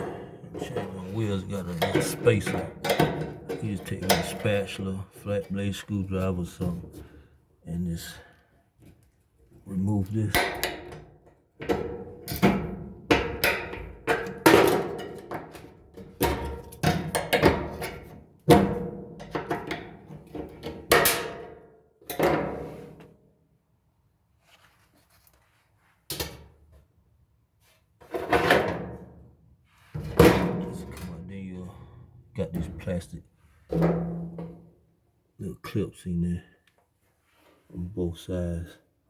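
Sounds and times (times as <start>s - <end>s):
metal clanks and knocks: 0.0s - 5.7s, 10.2s - 23.2s, 28.0s - 29.3s, 29.9s - 34.9s.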